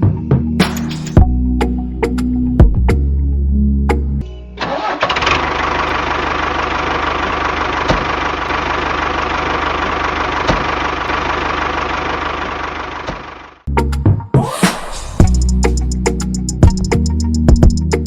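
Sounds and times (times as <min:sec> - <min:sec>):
small engine running: 0:05.0 - 0:13.6.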